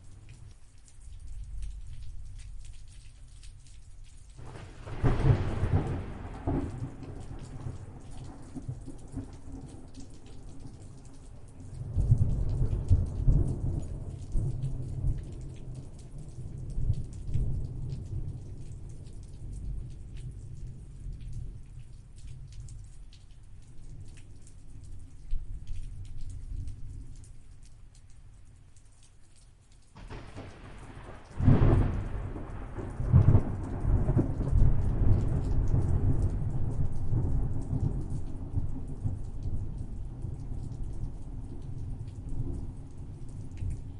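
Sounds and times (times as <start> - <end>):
steady rain: 0.0 - 43.9
rolling thunder: 4.4 - 9.9, 30.0 - 40.3.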